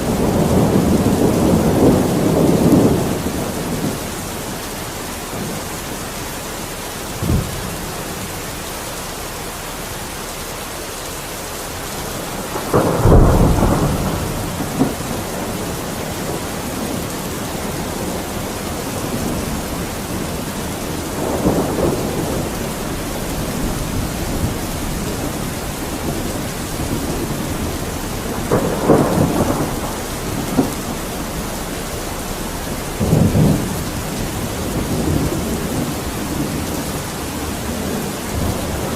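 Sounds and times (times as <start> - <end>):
thunder crack: 0.0 - 4.0, 12.3 - 38.9
rolling thunder: 0.0 - 8.6, 11.9 - 38.9
heavy rain: 0.0 - 38.9.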